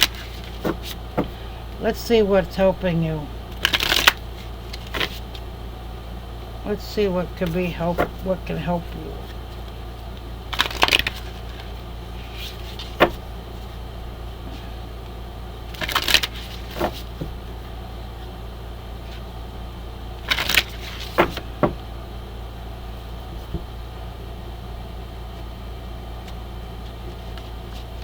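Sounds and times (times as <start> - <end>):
cards shuffling: 0.0 - 1.4, 3.6 - 5.4, 10.5 - 13.2, 20.2 - 21.4
steady low hum: 0.0 - 28.0.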